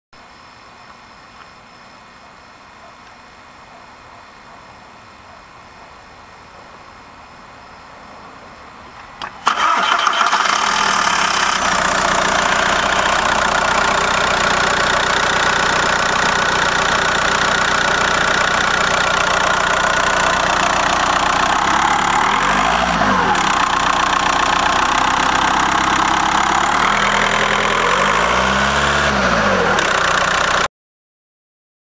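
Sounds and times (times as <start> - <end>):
diesel engine starting and running: 8.8 - 30.7.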